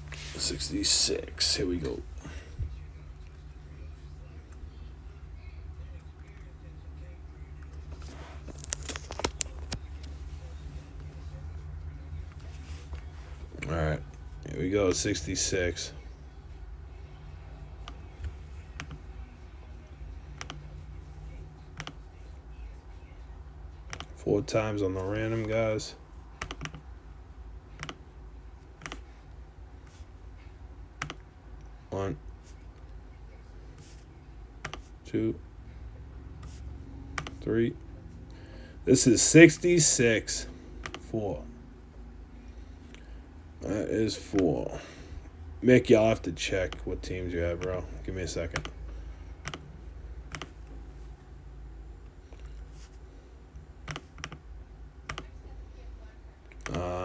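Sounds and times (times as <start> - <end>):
low steady hum: 0.0 - 57.0
computer keyboard or mouse clicks: 20.4 - 20.6, 21.8 - 22.0, 26.4 - 26.8, 27.8 - 28.0, 28.8 - 29.0, 31.0 - 31.2, 34.6 - 34.9, 37.2 - 37.4, 40.8 - 41.0, 49.4 - 49.7, 50.3 - 50.6, 53.9 - 54.4, 55.1 - 55.3.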